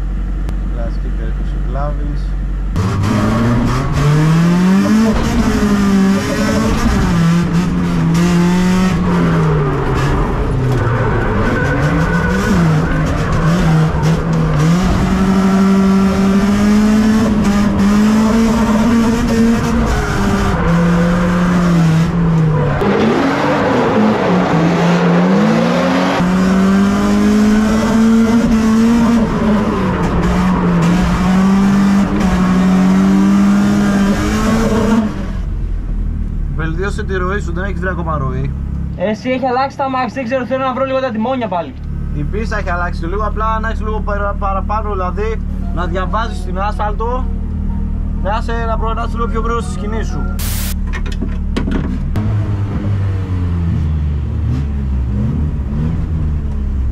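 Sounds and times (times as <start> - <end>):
car engine revving: 0.0 - 39.0, 50.4 - 50.8, 51.9 - 56.9.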